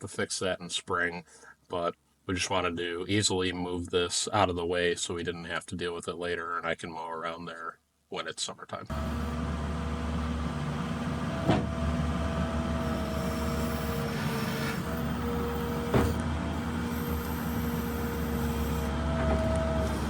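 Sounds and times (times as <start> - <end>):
diesel engine running: 8.9 - 20.0
high whine shifting in pitch: 12.3 - 20.0.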